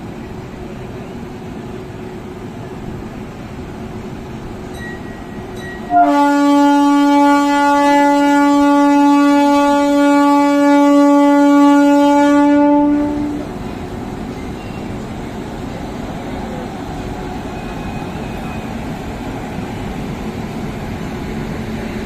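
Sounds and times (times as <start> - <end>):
moving train rumble: 0.0 - 22.0
train horn blast: 5.8 - 13.6.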